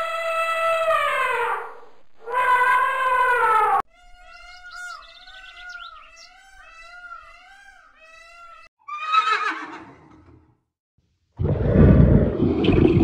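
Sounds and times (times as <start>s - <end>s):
zebra calling: 2.2s - 9.8s
high chirps: 4.0s - 7.8s.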